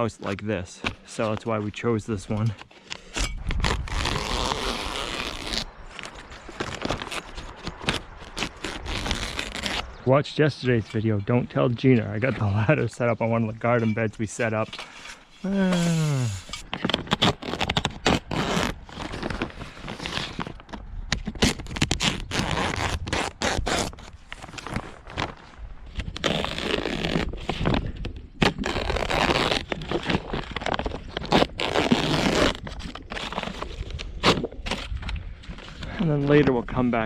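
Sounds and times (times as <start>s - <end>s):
plastic sheeting rustling: 3.6s - 10.0s.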